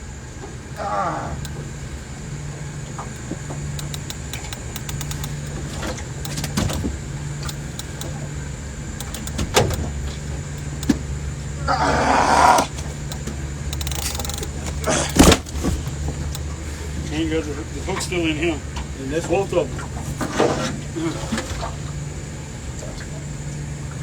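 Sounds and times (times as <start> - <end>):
low motor hum: 0.0 - 24.0
clicks and knocks: 2.9 - 8.4, 9.0 - 11.2, 12.6 - 16.5.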